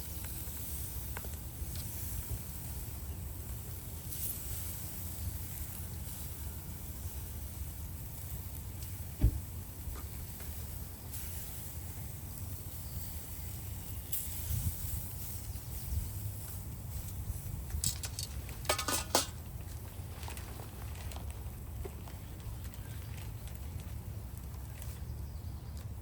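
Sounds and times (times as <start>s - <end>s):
grill crackling: 0.0s - 26.0s
thump: 9.2s - 9.5s.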